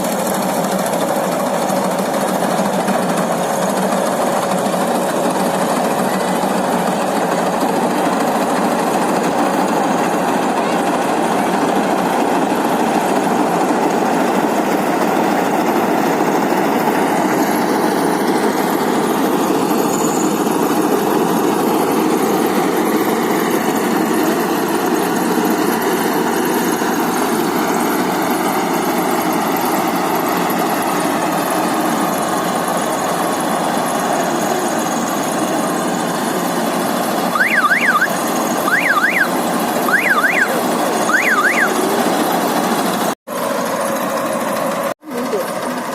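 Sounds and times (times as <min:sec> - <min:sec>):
van engine running: 0:00.0 - 0:45.9
high warbling chirps: 0:37.4 - 0:39.3, 0:39.9 - 0:41.8.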